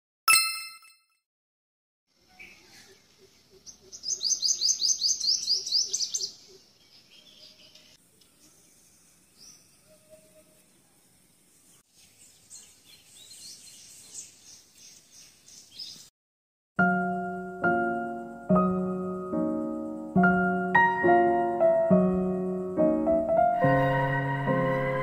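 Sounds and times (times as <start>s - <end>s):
bird chirping: 2.2s - 16.1s.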